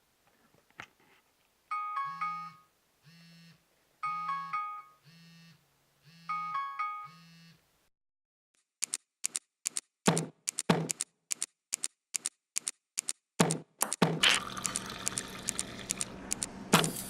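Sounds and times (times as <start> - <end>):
bell-like phone ringtone: 1.7 - 2.7, 4.0 - 5.5, 6.1 - 7.6
phone vibration buzzing: 3.0 - 3.6, 5.0 - 7.6.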